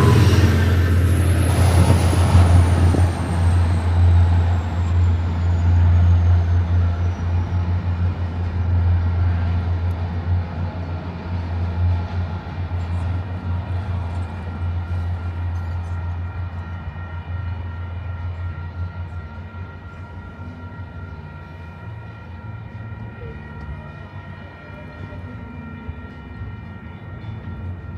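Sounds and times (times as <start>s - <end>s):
high whining tones: 0.0s - 7.4s
diesel locomotive engine drone: 0.0s - 27.9s.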